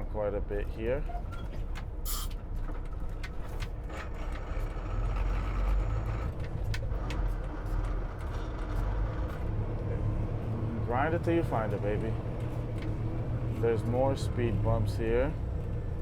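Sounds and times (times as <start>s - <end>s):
diesel truck engine running: 0.0s - 16.0s
air brake hiss: 2.1s - 2.3s.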